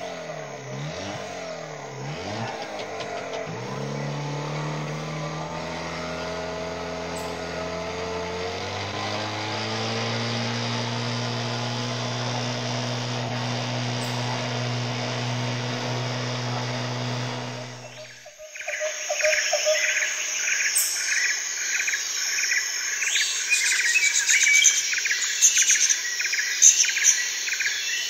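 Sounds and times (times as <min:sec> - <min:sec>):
boat motor running: 0:00.0 - 0:20.1.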